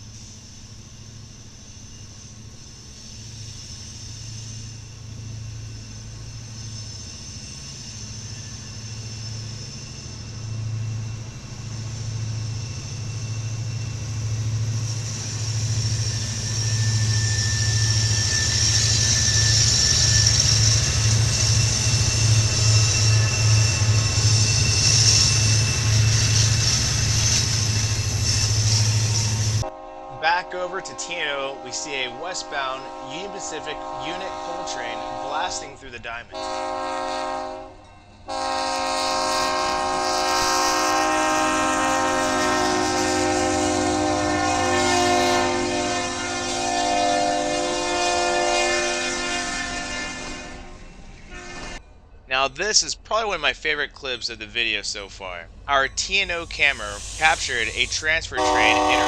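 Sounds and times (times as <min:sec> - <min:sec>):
high wheel squealing: 0:00.0 - 0:35.8, 0:55.7 - 0:59.0
diesel locomotive engine hum: 0:00.0 - 0:59.0
rail and wheel noise: 0:00.0 - 0:59.0.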